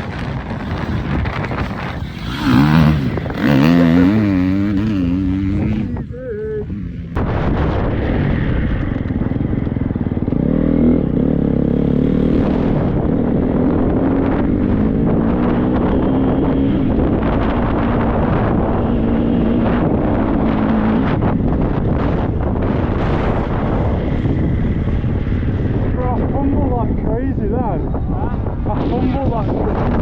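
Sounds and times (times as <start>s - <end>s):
motorcycle engine revving: 0.0s - 30.0s
wind noise: 0.0s - 30.0s.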